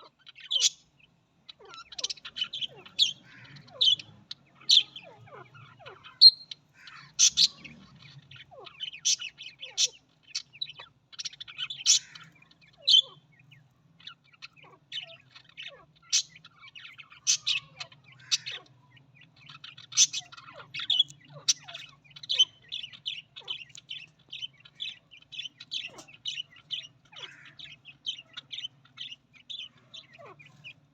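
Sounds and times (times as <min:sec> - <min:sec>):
budgerigar squawks: 0:00.0 - 0:00.9, 0:01.5 - 0:30.9
budgerigars chirping: 0:00.0 - 0:30.9.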